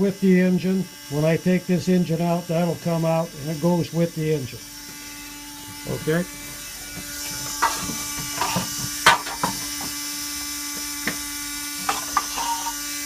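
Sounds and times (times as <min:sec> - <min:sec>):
steady hum: 0:00.0 - 0:13.0
knocks of objects being handled: 0:06.5 - 0:10.0, 0:10.7 - 0:12.8.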